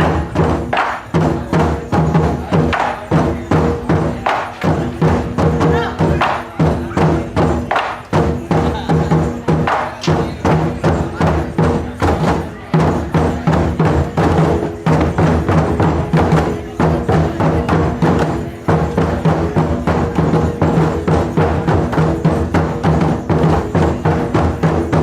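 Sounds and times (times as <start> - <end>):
taiko drums beating: 0.0 - 25.0.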